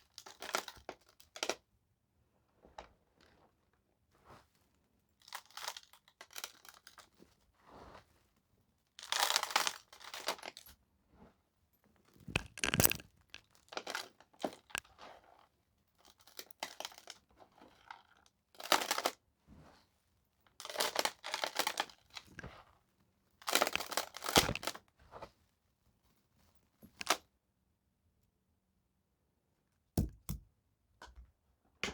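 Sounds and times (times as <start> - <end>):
crunching and crinkling: 12.2 - 15.1, 23.4 - 24.8.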